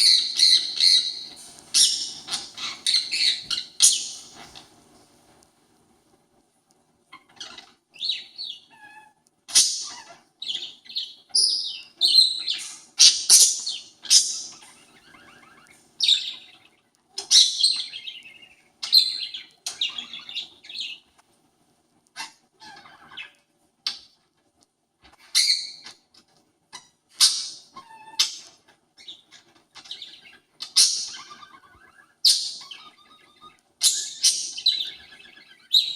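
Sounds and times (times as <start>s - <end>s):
parakeet screeching calls: 0.0s - 4.6s, 7.1s - 21.0s, 22.2s - 24.0s, 25.2s - 26.0s, 26.7s - 35.9s.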